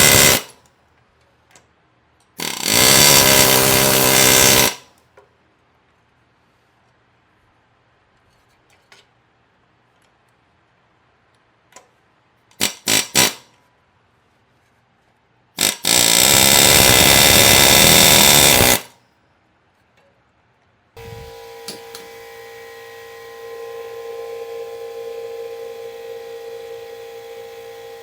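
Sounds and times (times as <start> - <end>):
pneumatic air hammer: 0.0 - 0.6, 2.4 - 4.9, 12.6 - 13.5, 15.6 - 18.9, 21.0 - 22.3.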